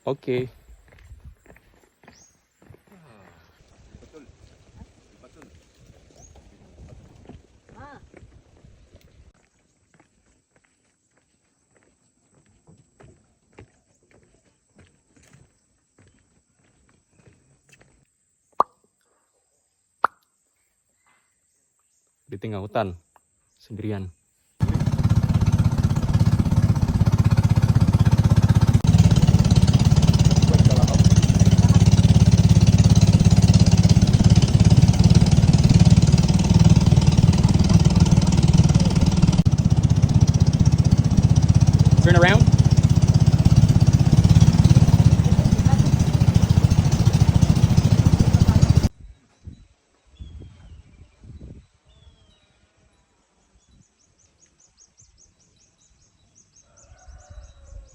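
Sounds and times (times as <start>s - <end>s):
small engine chugging: 24.6s - 48.9s.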